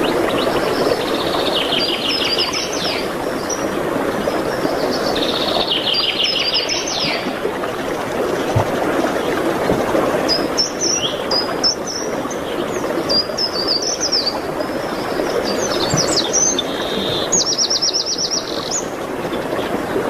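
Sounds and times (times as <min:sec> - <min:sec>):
songbird singing: 0:00.0 - 0:03.7, 0:04.8 - 0:07.4, 0:10.3 - 0:19.0.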